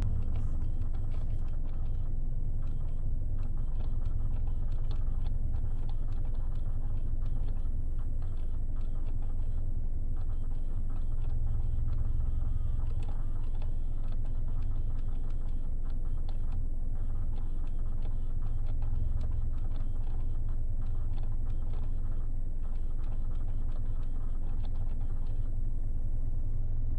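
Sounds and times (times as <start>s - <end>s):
low car rumble: 0.0s - 1.1s
faint clicking and crackling: 0.0s - 25.6s.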